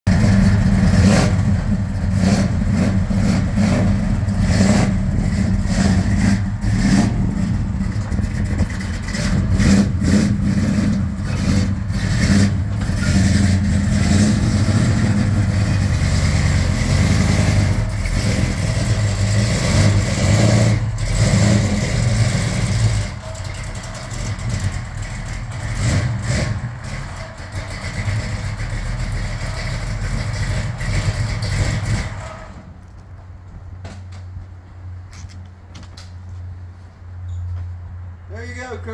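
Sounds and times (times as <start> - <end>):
car engine revving and idling: 0.0 - 32.7.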